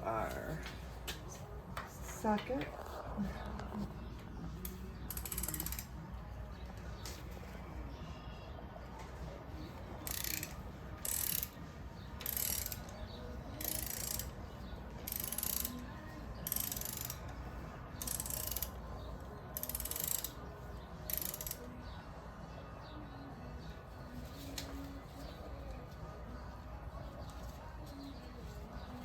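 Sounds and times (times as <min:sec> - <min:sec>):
ratchet wrench clicking: 0:04.6 - 0:06.0, 0:10.0 - 0:11.6, 0:12.2 - 0:13.0, 0:13.6 - 0:14.4, 0:15.0 - 0:17.3, 0:18.0 - 0:18.8, 0:19.5 - 0:20.4, 0:21.1 - 0:21.7.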